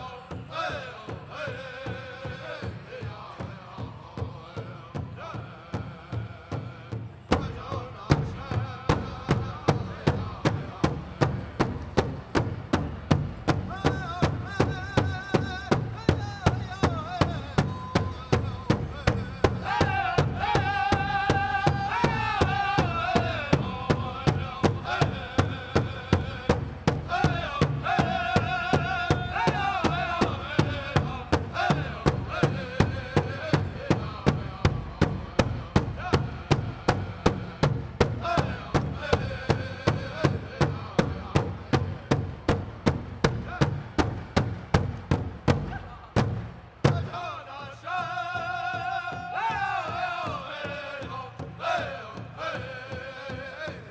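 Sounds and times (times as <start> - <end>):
high-pitched group singing: 0.0 - 6.8, 19.0 - 41.5, 46.9 - 53.9
large drum steady beat: 0.0 - 53.9.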